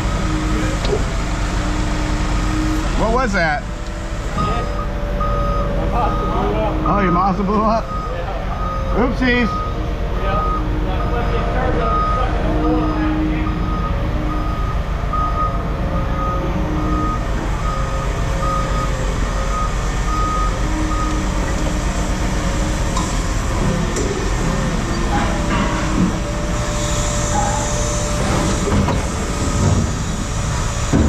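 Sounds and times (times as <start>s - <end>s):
heavy engine running: 0.0s - 31.0s
reversing alarm beeping: 2.4s - 31.0s.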